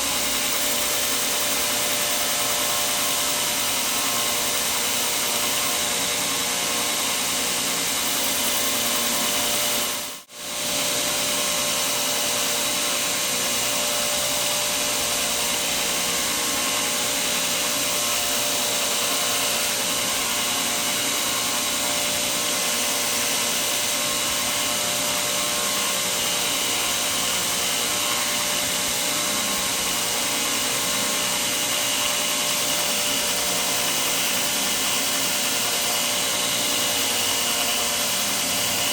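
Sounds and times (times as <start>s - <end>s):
power tool running: 0.0s - 38.9s.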